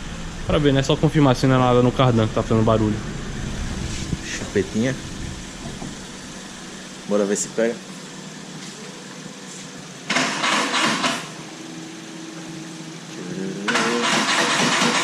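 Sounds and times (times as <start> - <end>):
car engine cranking and starting: 0.0 - 7.1, 10.1 - 11.4, 13.7 - 15.0.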